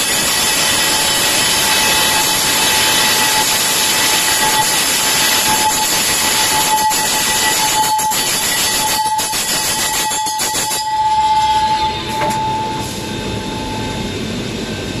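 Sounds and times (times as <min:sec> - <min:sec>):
machine whine: 0:00.0 - 0:15.0
quiet machine running noise: 0:09.4 - 0:15.0.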